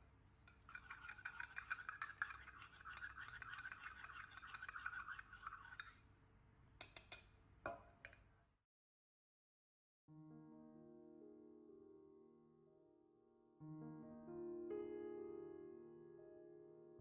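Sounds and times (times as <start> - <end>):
spoon clinking against glass: 0.5 - 6.0
spoon tapping glass: 6.8 - 8.2.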